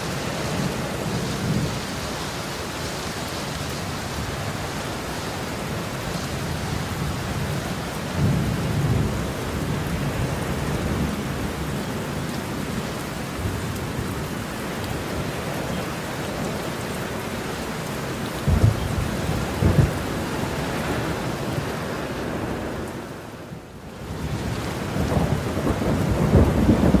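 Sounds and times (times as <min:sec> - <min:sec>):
heavy rain falling: 0:00.0 - 0:27.0
thunder rumbling: 0:05.6 - 0:12.7, 0:18.4 - 0:22.8, 0:24.1 - 0:27.0.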